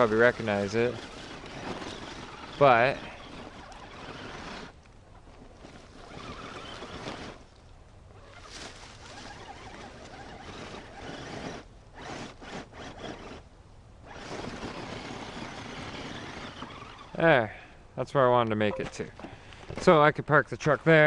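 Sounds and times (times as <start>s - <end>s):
toy truck motor whirring: 0.0s - 7.5s, 8.1s - 17.3s.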